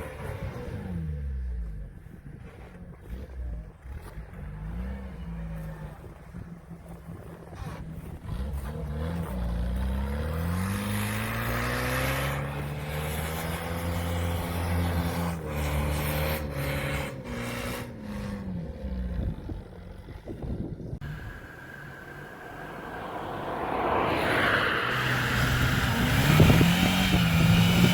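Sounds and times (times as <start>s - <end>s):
engine revving under load: 7.0s - 27.9s.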